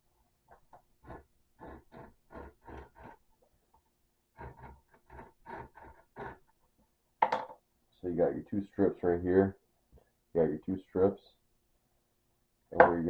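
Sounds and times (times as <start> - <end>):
tape being cut with scraping strokes: 1.0 - 3.2, 4.4 - 6.5.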